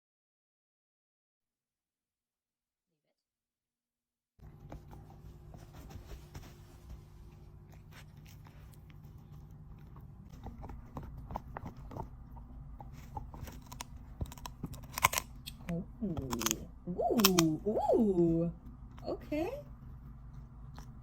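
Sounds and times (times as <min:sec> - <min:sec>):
low steady hum: 0:04.4 - 0:21.0
puppy chewing a treat: 0:07.6 - 0:16.6.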